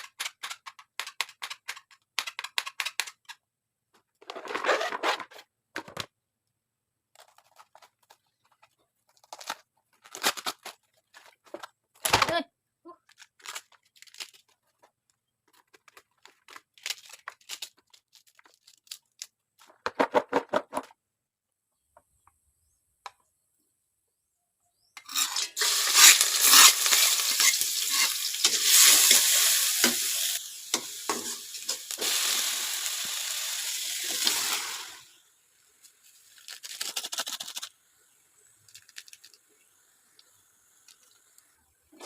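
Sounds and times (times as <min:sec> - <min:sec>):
food sizzling in hot oil: 0:25.1 - 0:41.6
stirring in a pan: 0:30.7 - 0:32.1.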